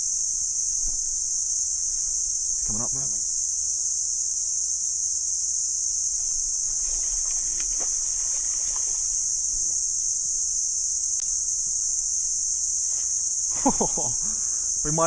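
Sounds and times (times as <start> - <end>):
cicadas buzzing: 0.0 - 15.0.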